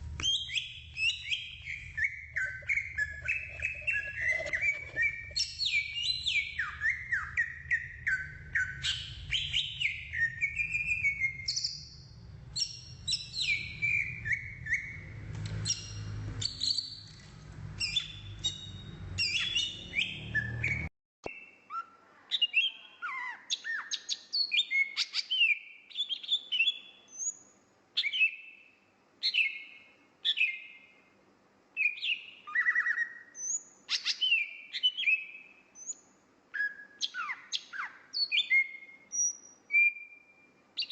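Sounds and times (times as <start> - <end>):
low background rumble: 0.0 - 5.6
songbird singing whistled phrases: 0.1 - 12.0, 12.6 - 17.1, 17.8 - 27.4, 28.0 - 31.0, 31.8 - 40.9.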